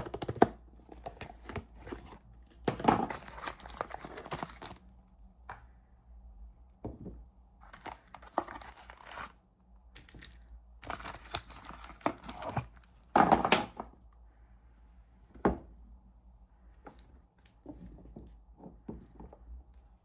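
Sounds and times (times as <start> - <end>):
packaging tearing and crinkling: 3.0 - 4.8, 7.7 - 9.4, 10.0 - 13.0.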